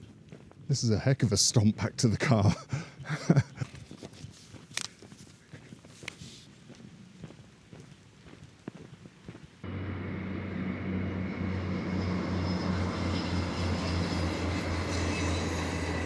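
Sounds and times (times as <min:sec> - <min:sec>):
footsteps on a path: 0:00.0 - 0:01.4, 0:02.4 - 0:09.6
engine loud low drone: 0:09.6 - 0:16.0.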